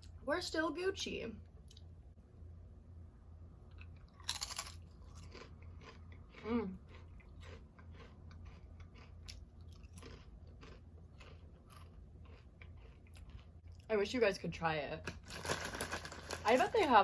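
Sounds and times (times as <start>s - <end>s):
crunching and chewing chip: 3.7s - 13.9s, 15.1s - 16.9s.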